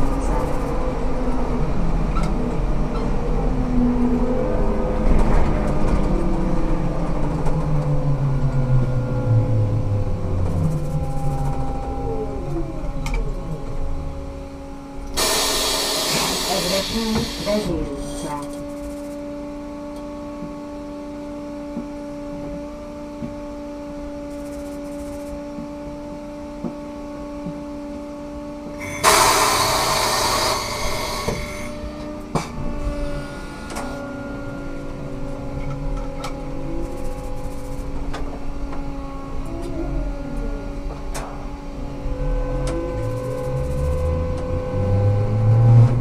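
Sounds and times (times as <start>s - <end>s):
trolleybus electrical hum: 0.0s - 46.0s
compressed air hiss: 15.2s - 18.2s, 28.8s - 31.9s.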